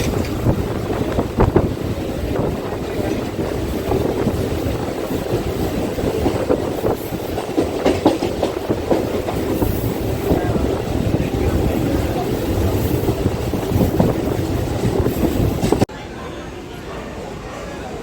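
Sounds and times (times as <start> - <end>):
train running: 0.0 - 15.9
wheels knocking over rail joints: 0.0 - 15.9.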